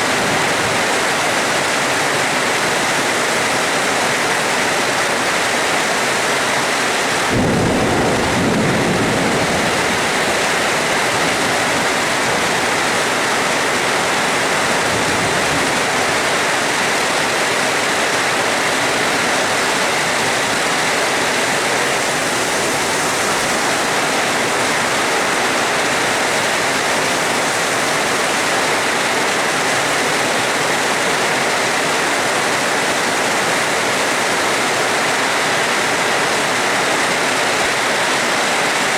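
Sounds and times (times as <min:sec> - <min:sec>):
heavy rain: 0:00.0 - 0:38.9
thunder rumble: 0:07.3 - 0:13.2.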